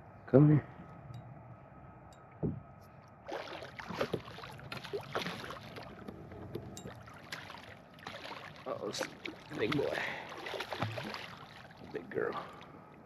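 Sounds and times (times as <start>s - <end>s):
fish splashing in water: 3.3s - 12.8s.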